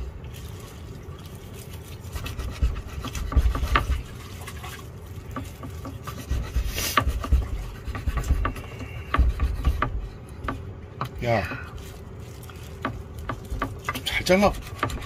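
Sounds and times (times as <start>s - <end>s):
rubbing and scraping: 1.5s - 15.0s
knocks: 7.0s - 11.2s.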